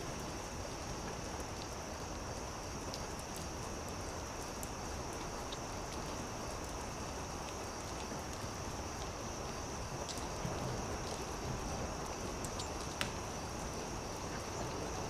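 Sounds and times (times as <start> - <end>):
campfire crackling: 0.1 - 15.0.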